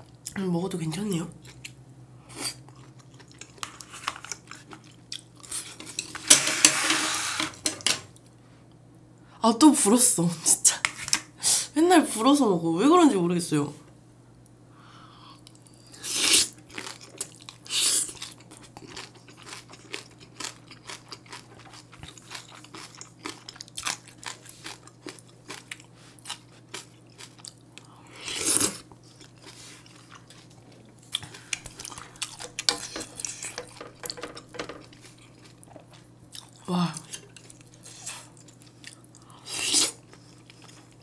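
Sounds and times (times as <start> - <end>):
wet chewing and smacking: 2.5 - 5.9, 16.7 - 27.9, 28.8 - 39.3, 40.0 - 41.0.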